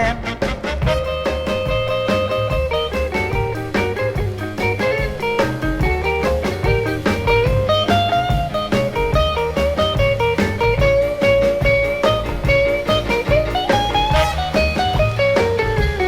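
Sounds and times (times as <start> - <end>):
bass: 0.0 - 16.0
electric guitar: 0.0 - 16.0
lead melody with bending notes: 0.0 - 16.0
steady drum beat: 0.0 - 16.0.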